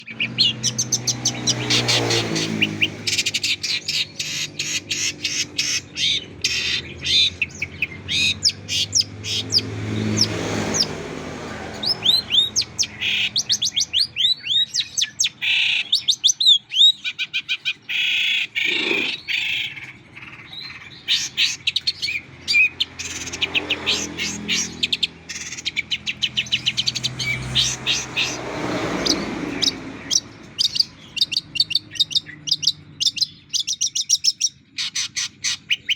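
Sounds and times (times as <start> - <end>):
bird song chirps and whistles: 11.8 - 28.4, 29.0 - 35.9.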